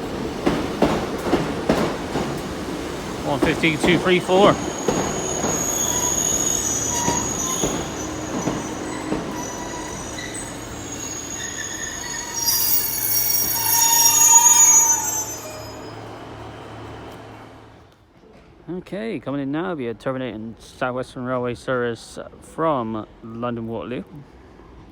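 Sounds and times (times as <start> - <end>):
low train rumble: 0.0 - 17.9
train wheels squealing on rails: 3.3 - 17.6.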